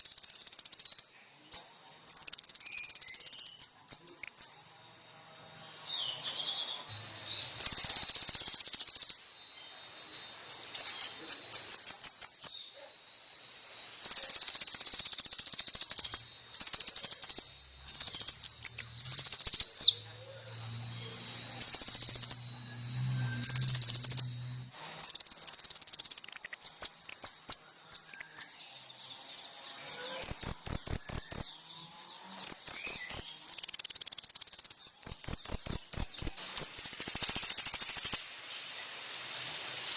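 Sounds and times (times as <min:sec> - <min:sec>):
high buzzy bird trills: 0:07.2 - 0:09.3, 0:14.0 - 0:28.6, 0:29.8 - 0:31.6, 0:32.3 - 0:38.2
fast ticking bird notes: 0:07.6 - 0:09.2, 0:14.1 - 0:20.0, 0:21.1 - 0:22.5, 0:23.4 - 0:24.4, 0:25.0 - 0:28.1, 0:30.2 - 0:31.5, 0:32.4 - 0:38.1.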